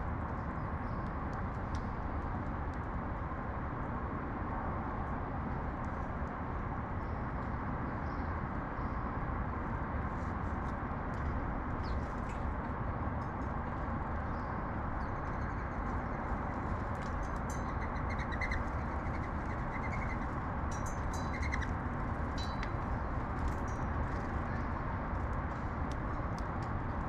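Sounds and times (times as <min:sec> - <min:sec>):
low urban background rumble: 0:00.0 - 0:27.0
sparrows chirping: 0:17.4 - 0:21.7.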